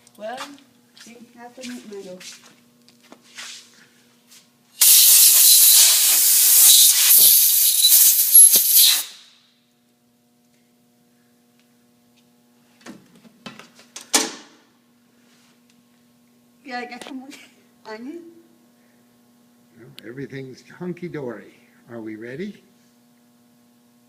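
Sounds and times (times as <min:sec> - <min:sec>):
compressed air hissing: 0:04.8 - 0:09.3.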